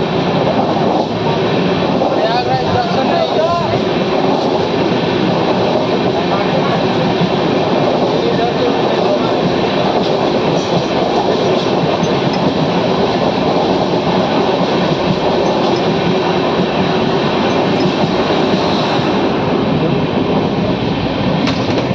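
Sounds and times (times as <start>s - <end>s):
train wheels rumbling on rails: 0.0s - 21.9s.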